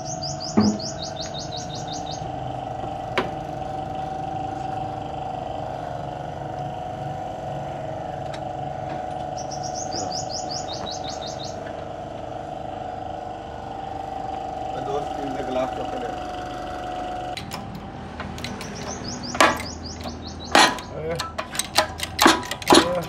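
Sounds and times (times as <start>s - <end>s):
small bird trilling: 0.0s - 2.4s, 9.3s - 11.6s, 18.4s - 21.0s
steady mechanical hum: 0.0s - 23.0s.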